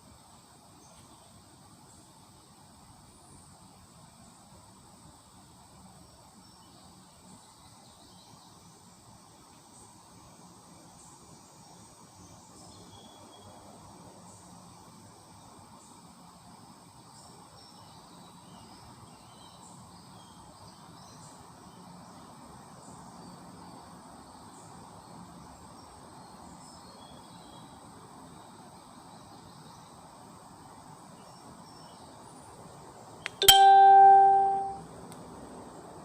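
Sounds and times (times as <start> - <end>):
loud ringing note: 33.4 - 34.8.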